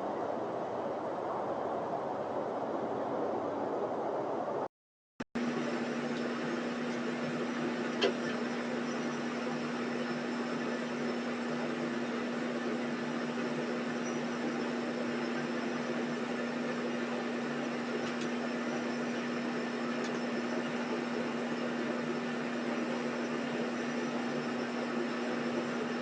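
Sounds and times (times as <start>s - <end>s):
steady machine hum: 5.4s - 26.0s.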